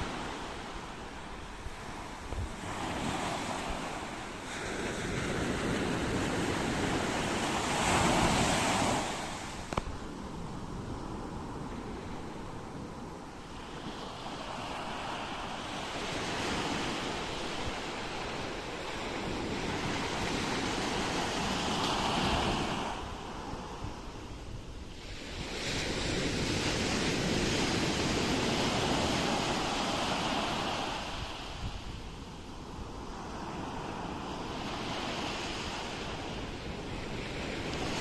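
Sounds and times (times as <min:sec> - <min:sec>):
ocean waves washing ashore: 0:00.0 - 0:38.0
wind rumble on microphone: 0:00.0 - 0:38.0.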